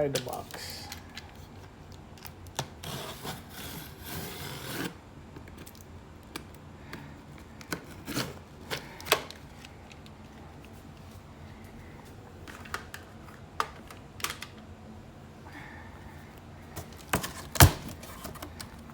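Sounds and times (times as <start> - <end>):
cardboard box rubbing and scraping: 2.8 - 5.0.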